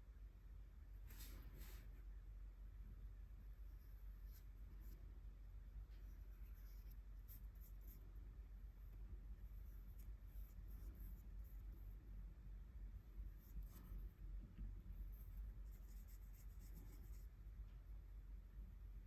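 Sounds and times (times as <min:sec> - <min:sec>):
low room hum: 0:00.0 - 0:19.0
scratchy strokes on paper: 0:01.1 - 0:02.0, 0:05.9 - 0:08.1, 0:09.4 - 0:12.0, 0:13.3 - 0:14.2, 0:15.0 - 0:17.3.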